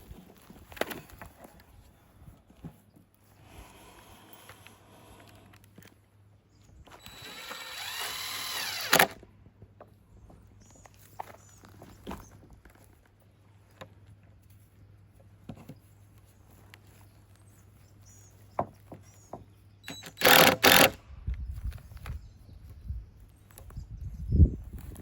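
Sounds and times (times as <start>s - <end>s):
power driver driving screw: 6.9s - 9.2s, 19.9s - 21.0s.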